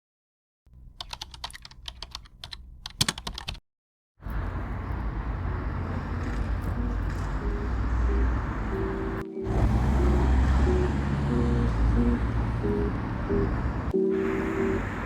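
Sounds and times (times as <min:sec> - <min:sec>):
quick irregular clicks: 0:01.0 - 0:03.6.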